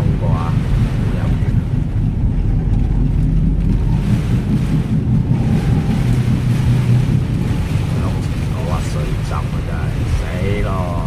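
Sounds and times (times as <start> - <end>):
car engine and tyre rumble: 0.0 - 11.0
wind buffeting microphone: 0.0 - 11.0
heavy rain: 2.2 - 11.0.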